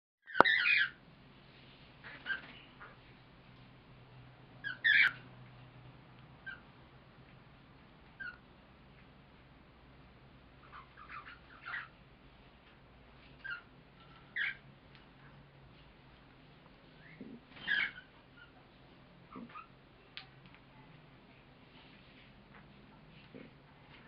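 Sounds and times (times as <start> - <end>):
cockatiel chirping: 0.3 - 1.0, 4.6 - 5.2, 10.6 - 11.9, 14.3 - 14.6, 17.0 - 18.6.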